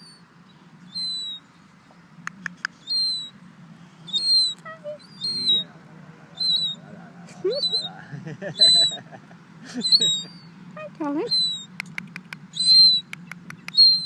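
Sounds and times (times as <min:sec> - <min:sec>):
seagull calling: 0:00.0 - 0:00.2, 0:00.9 - 0:01.6, 0:02.5 - 0:03.4, 0:04.0 - 0:11.8, 0:12.5 - 0:14.0
sharp clicks: 0:02.3 - 0:02.8, 0:11.7 - 0:14.0.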